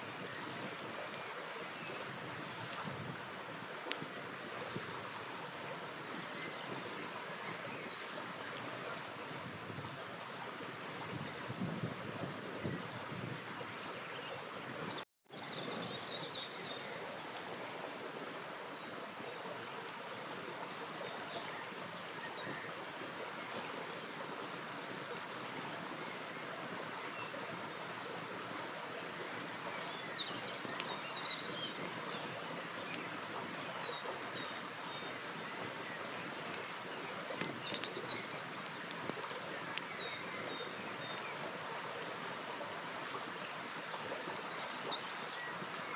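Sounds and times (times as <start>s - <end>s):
river rushing: 15.4s - 45.9s.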